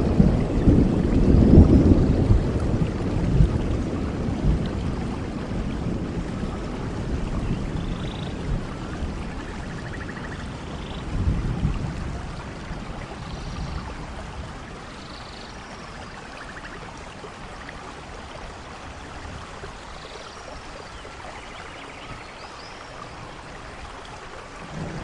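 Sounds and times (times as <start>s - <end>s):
low rumble of thunder: 0.0s - 17.8s, 23.1s - 25.0s
steady rain falling: 0.0s - 25.0s
faint chirping calls: 9.3s - 11.1s, 14.9s - 16.8s.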